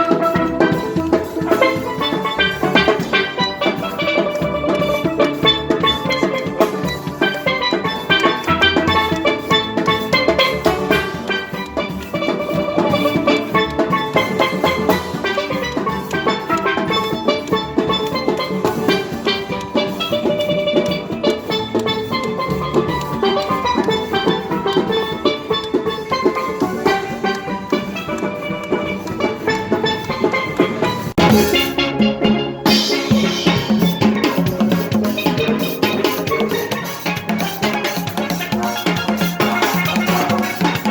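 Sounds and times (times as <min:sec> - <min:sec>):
drum rhythm section: 0:00.0 - 0:40.9
steel pans playing fast runs: 0:00.0 - 0:40.9.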